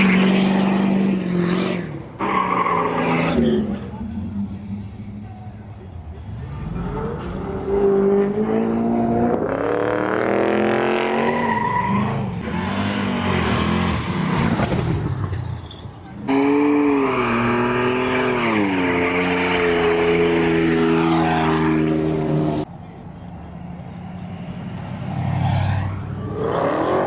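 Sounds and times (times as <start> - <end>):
tire noise: 0.0 - 27.0
car engine revving: 16.3 - 22.7.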